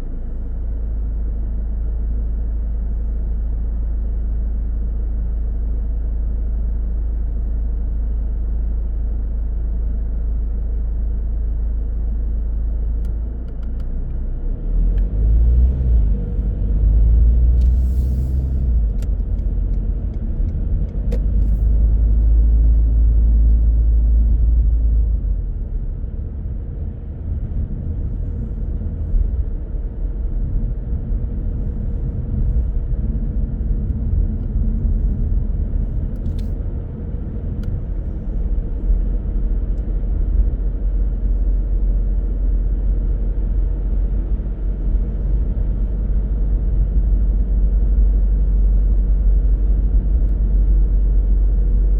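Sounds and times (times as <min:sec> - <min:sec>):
car road and engine rumble: 0:00.0 - 0:51.9.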